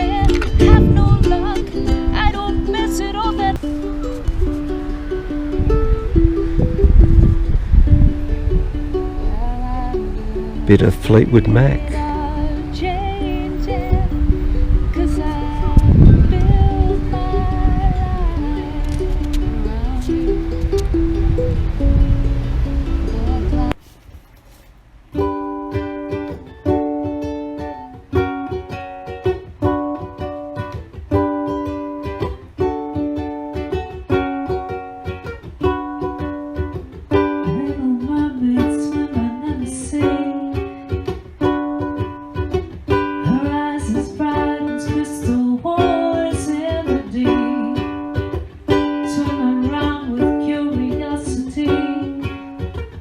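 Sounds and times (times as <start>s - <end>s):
person singing: 0.0s - 3.6s, 9.2s - 14.2s, 14.8s - 21.0s, 23.0s - 23.8s, 37.2s - 40.9s, 43.0s - 52.8s
ukulele strumming: 0.0s - 53.0s.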